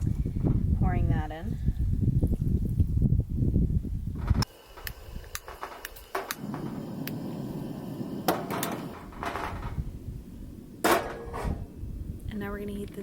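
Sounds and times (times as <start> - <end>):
steady low rush: 4.4 - 13.0
cooking pots and lids clanking: 10.8 - 11.7.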